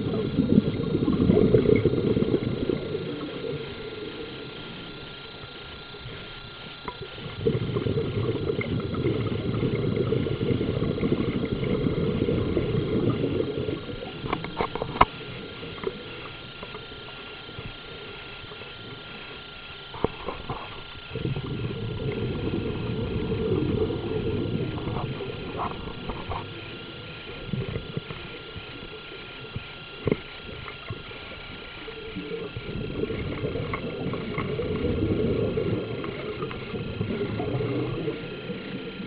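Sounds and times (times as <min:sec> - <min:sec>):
low rumbling noise: 0:00.0 - 0:05.2, 0:21.1 - 0:28.2, 0:32.5 - 0:39.0.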